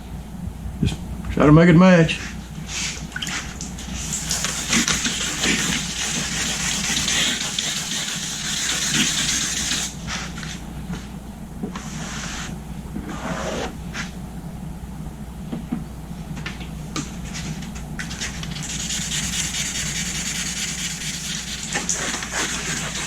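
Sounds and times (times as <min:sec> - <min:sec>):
steady low hum: 0:00.0 - 0:23.0
wet sandpaper rubbing on paint: 0:04.0 - 0:09.9, 0:18.2 - 0:23.0.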